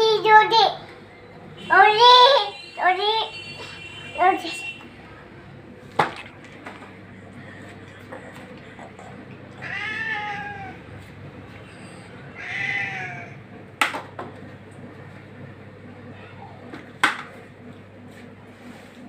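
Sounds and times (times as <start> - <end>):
cat meowing: 9.6 - 10.8, 12.4 - 13.4.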